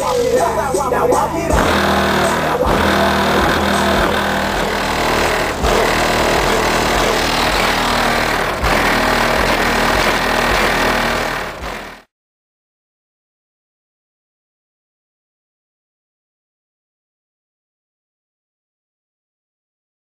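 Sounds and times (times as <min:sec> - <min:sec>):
subwoofer playing bass-heavy music: 0:00.0 - 0:12.1.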